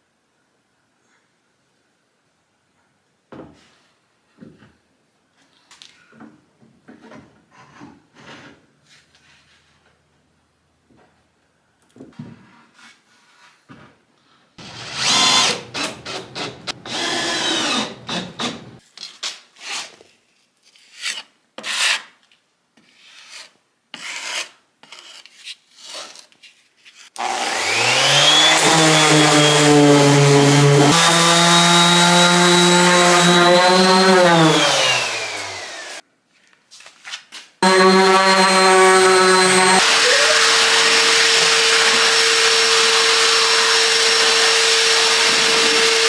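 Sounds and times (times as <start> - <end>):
power tool motor running: 14.6 - 18.8, 27.2 - 36.0, 37.6 - 46.0
wood scraping and knocking: 14.6 - 18.8.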